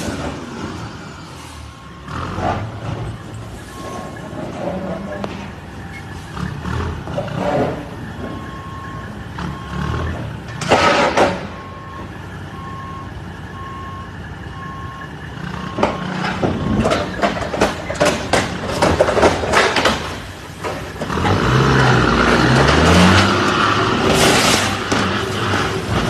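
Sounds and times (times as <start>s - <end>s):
truck engine revving: 0.0s - 26.0s
reversing alarm beeping: 1.2s - 6.7s, 7.9s - 10.6s, 11.3s - 17.2s
sharp knocks and clatter: 15.8s - 21.3s.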